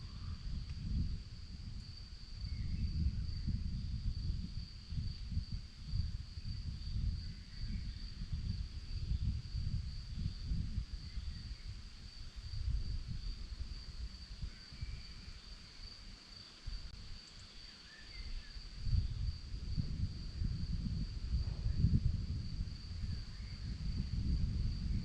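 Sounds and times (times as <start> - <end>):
crickets trilling: 0.0 - 25.0
wind rumbling on microphone: 0.0 - 25.0
faint bird chirps: 17.2 - 18.6.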